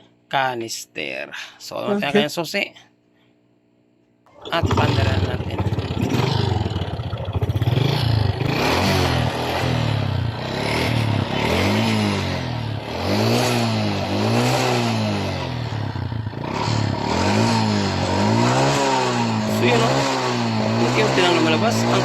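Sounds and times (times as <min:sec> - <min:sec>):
man talking: 0:00.4 - 0:02.8, 0:04.5 - 0:05.7, 0:19.5 - 0:22.0
motorcycle engine revving: 0:04.3 - 0:22.0.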